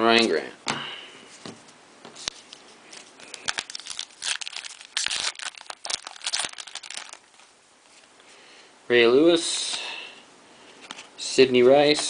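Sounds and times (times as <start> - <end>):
wrapper tearing and crinkling: 3.0 - 7.5.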